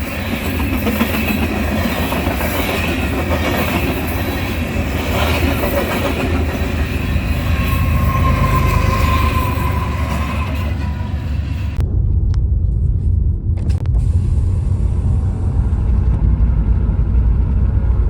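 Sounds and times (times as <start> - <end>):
train wheels rumbling on rail: 0.0 - 18.0
thin wheel squeal: 6.6 - 11.8.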